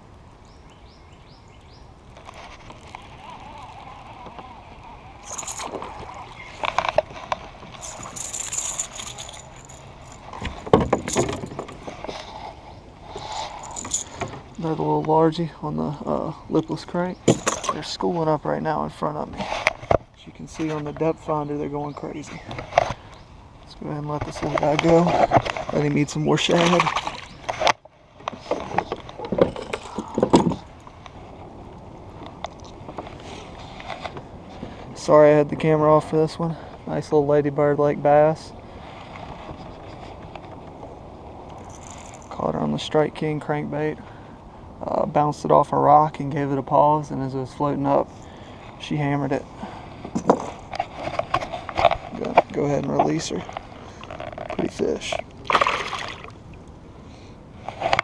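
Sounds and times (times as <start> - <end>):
rattles: 2.2 - 12.2, 13.2 - 14.5, 17.3 - 17.9, 28.5 - 30.7
water splashes: 55.2 - 56.7.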